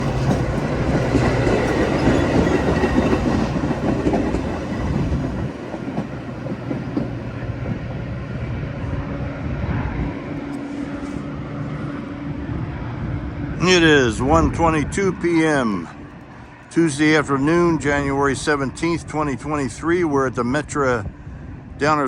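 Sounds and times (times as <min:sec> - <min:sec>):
train wheels clattering over rails: 0:00.0 - 0:08.4
low train rumble: 0:00.0 - 0:22.0.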